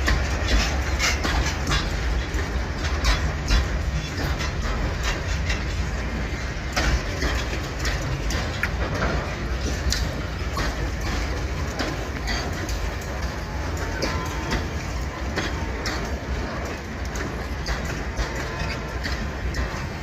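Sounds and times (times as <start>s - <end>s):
freight train rumbling past: 0.0s - 20.0s
wheels and couplings clanking: 0.0s - 20.0s.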